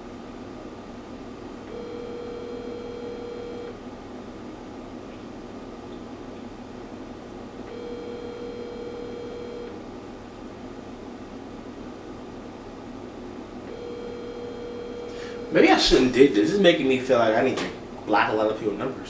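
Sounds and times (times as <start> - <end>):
phone ringback tone: 1.7 - 3.8, 7.7 - 9.8, 13.7 - 15.6.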